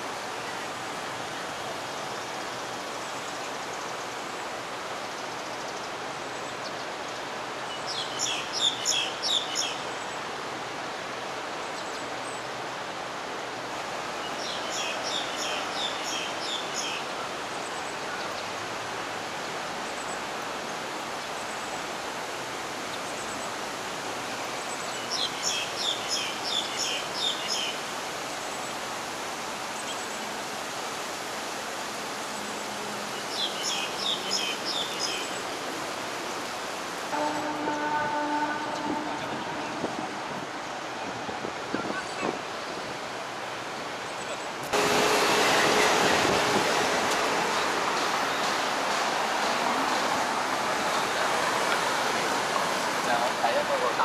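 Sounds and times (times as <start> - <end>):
outdoor background hiss: 0.0 - 54.0
songbird chirping: 33.1 - 35.8.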